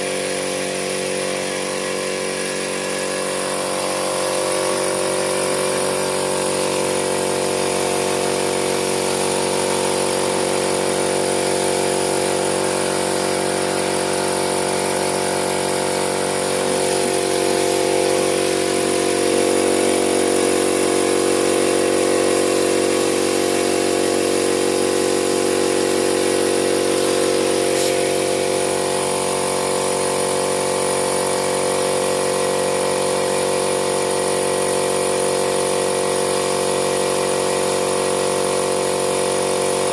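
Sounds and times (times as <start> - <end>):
machine hum and hiss: 0.0 - 39.9.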